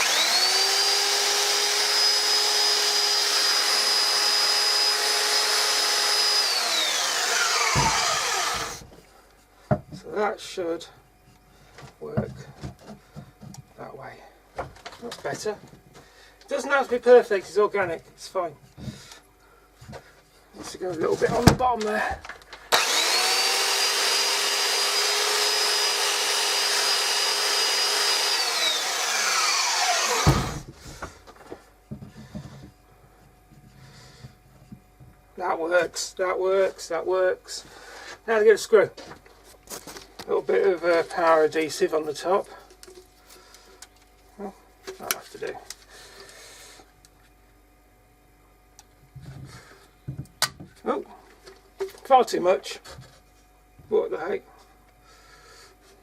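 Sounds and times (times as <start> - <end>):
power tool motor whining: 0.0 - 8.9, 22.7 - 30.7.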